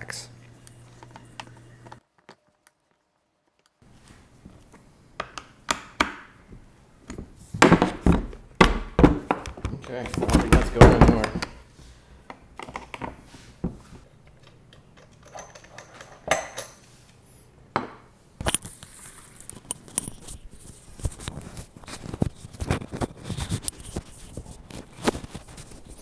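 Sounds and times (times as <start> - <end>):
metal parts and tools clinking: 14.4 - 16.9.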